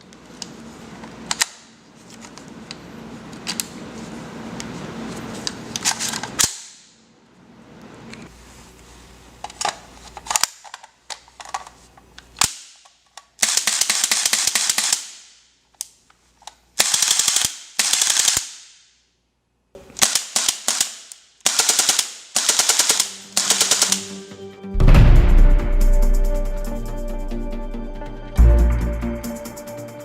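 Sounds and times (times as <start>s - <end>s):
airsoft gun firing: 20.0s - 24.2s.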